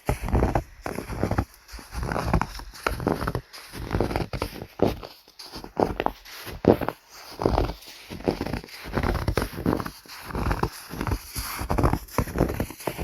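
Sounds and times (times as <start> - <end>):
footsteps crunching in snow: 0.0 - 13.0.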